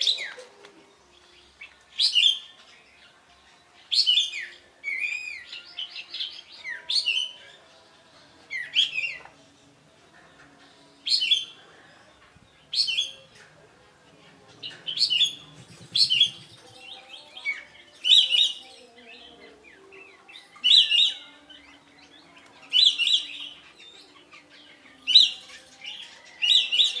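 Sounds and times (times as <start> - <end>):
songbird chattering: 14.6 - 17.0.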